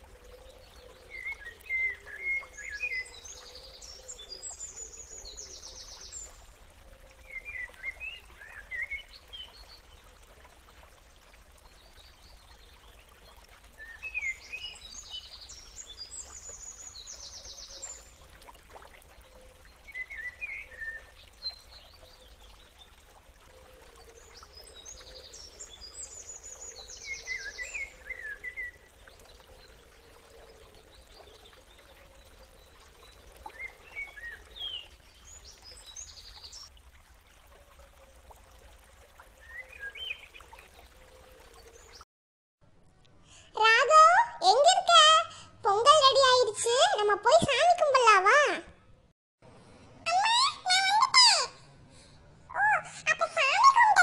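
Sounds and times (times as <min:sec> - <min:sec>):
bird chirps and trills: 0:00.4 - 0:06.4, 0:13.8 - 0:18.2, 0:23.9 - 0:36.7.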